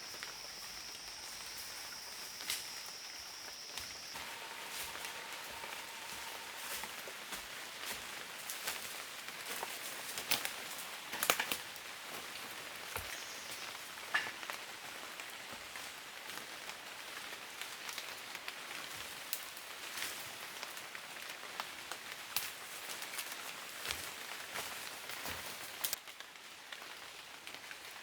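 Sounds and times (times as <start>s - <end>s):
steady outdoor hiss: 0.0s - 17.0s
light ticks and crackles: 0.1s - 28.0s.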